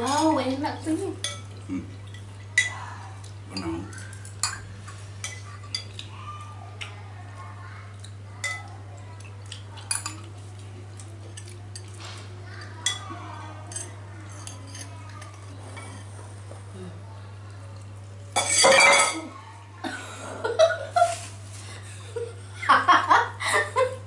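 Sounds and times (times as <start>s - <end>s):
utensils clinking on plates: 0.0s - 0.6s, 1.2s - 2.8s, 3.5s - 6.1s, 8.0s - 8.7s, 9.4s - 16.4s, 18.3s - 19.3s.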